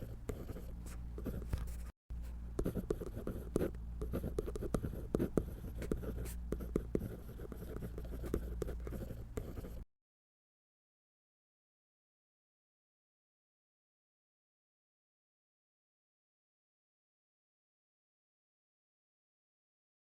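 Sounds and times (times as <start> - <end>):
pencil scratching on paper: 0.0 - 1.9, 2.6 - 9.9
steady low hum: 0.0 - 9.9.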